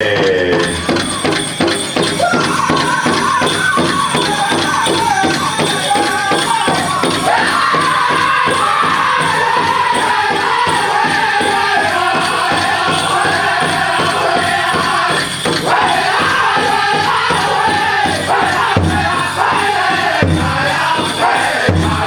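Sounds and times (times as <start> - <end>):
big drum beat: 0.0 - 22.0
group singing in high voices: 0.0 - 22.0.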